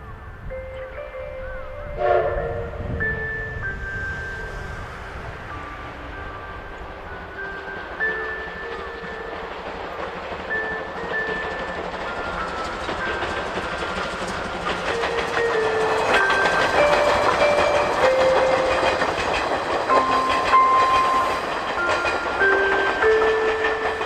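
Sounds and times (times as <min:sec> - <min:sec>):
light tinkling melody: 0:00.0 - 0:24.0
steam train passing: 0:00.0 - 0:24.0
wheels clattering over rail joints: 0:05.2 - 0:24.0.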